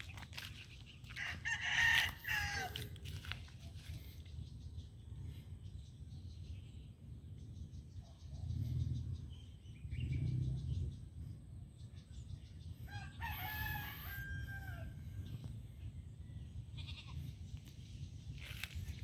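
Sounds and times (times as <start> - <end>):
rooster crowing: 1.1 - 3.0, 12.9 - 15.0.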